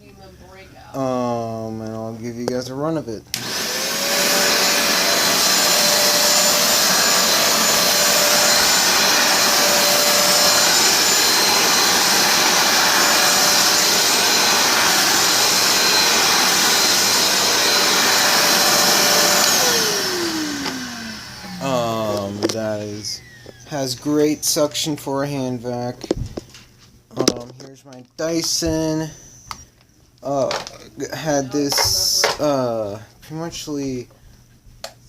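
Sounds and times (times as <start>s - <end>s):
hand vacuum whining: 3.3s - 24.6s.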